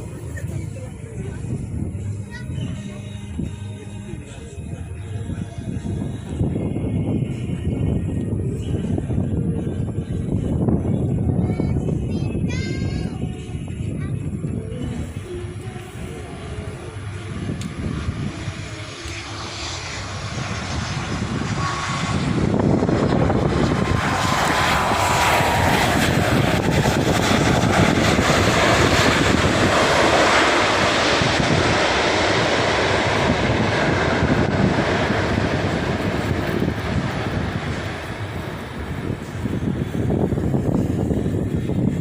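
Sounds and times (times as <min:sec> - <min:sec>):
jet engines roaring: 0:00.0 - 0:12.4, 0:13.1 - 0:42.0.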